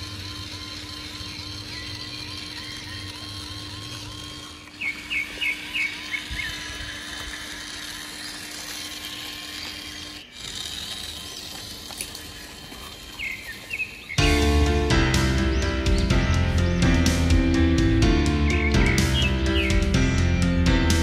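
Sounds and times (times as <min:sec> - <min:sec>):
outdoor background noise: 0:00.0 - 0:21.0
bird chirping falling chirps: 0:04.7 - 0:06.7.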